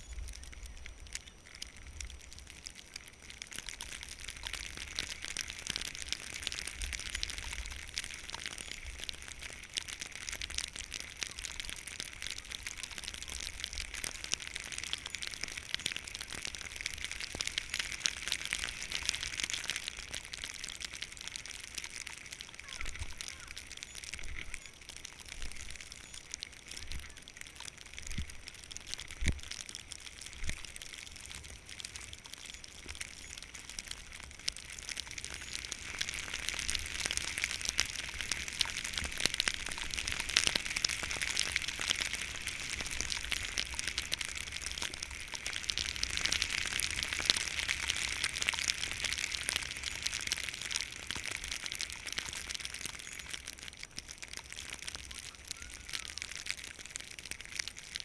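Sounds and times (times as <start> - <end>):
crackles: 0.0 - 58.0
wind rumbling on microphone: 25.4 - 31.6.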